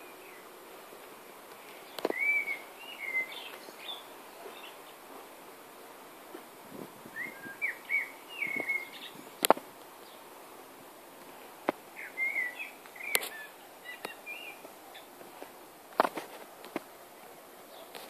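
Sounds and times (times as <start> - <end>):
bird chirping: 1.7 - 5.1, 7.2 - 9.4, 11.9 - 15.1.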